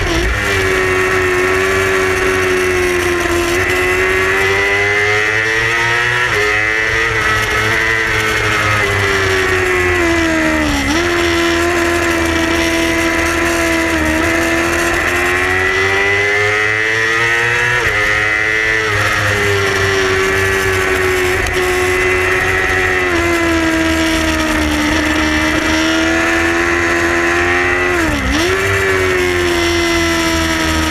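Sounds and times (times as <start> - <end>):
motorcycle engine revving high: 0.0 - 30.9.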